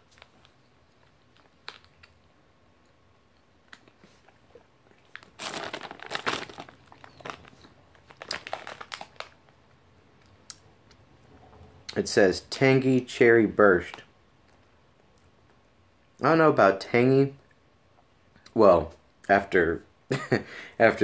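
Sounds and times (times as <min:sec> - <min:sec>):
plastic bag crinkling: 0:05.0 - 0:09.6.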